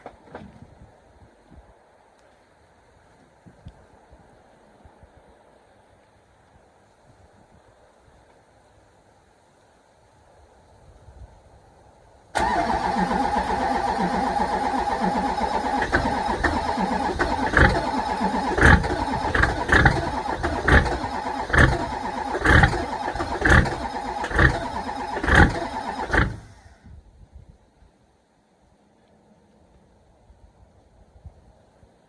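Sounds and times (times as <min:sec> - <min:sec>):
diesel engine cranking on starter: 0:12.4 - 0:26.8
loud uneven engine bangs: 0:18.5 - 0:26.6.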